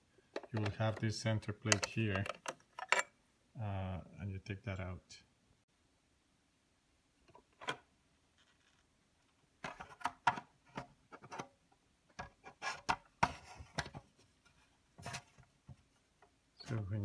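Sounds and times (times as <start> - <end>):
plastic parts clicking and knocking: 0.2 - 3.1, 9.6 - 11.5.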